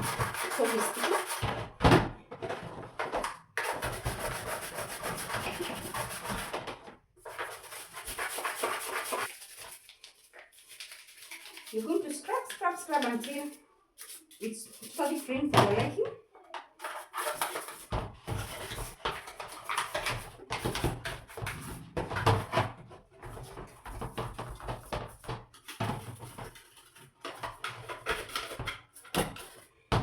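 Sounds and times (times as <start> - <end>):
scrubbing strokes: 0.0 - 1.4, 3.7 - 6.5, 7.3 - 15.5.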